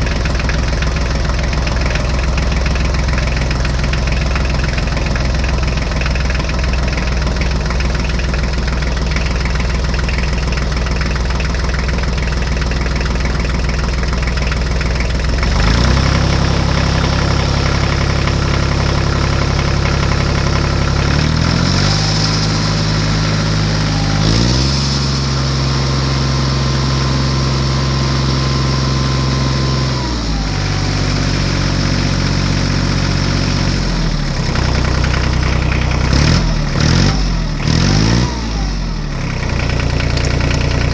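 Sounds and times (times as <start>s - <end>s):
engine running and revving: 0.0s - 40.9s.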